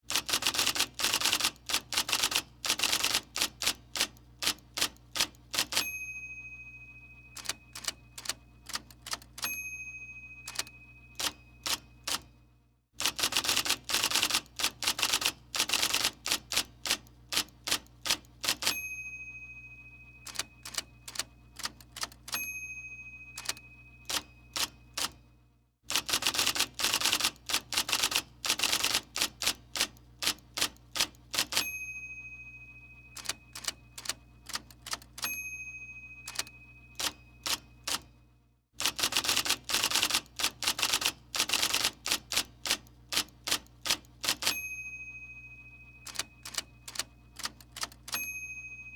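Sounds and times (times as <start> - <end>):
typewriter key clacks: 0.1 - 5.8, 7.4 - 9.5, 13.0 - 18.8, 23.4 - 25.2, 25.9 - 31.6, 33.2 - 35.3, 38.8 - 44.6, 46.1 - 48.2
typewriter bell ding: 0.1 - 12.4, 13.0 - 25.3, 25.9 - 38.2, 38.8 - 48.9.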